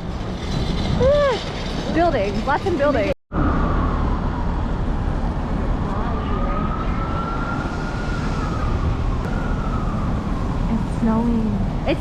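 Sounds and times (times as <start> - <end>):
low city street rumble: 0.0 - 12.0
emergency vehicle siren wailing: 3.3 - 12.0.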